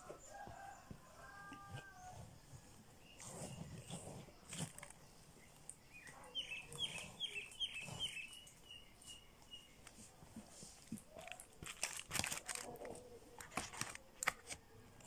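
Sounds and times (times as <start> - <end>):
bird chirping: 2.0 - 10.0
hands tapping and rustling: 9.8 - 15.0.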